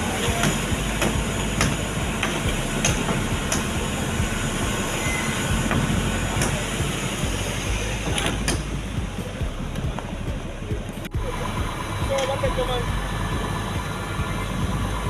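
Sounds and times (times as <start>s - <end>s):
sharp mechanical clicks and knocks: 0.0s - 11.2s
diesel engine rumble: 0.0s - 15.0s.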